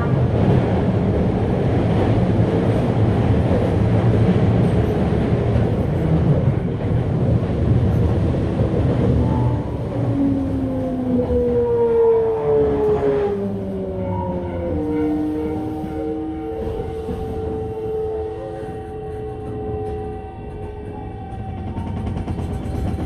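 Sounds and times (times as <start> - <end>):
train wheels rumbling on rail: 0.0 - 23.0
train motor whine: 9.2 - 23.0.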